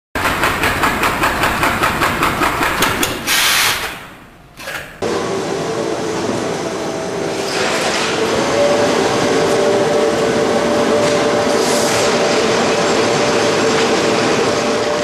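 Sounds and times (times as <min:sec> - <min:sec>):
sewing machine clattering: 0:00.2 - 0:03.4
short hiss: 0:03.3 - 0:03.9
steady machine hum: 0:04.1 - 0:15.0.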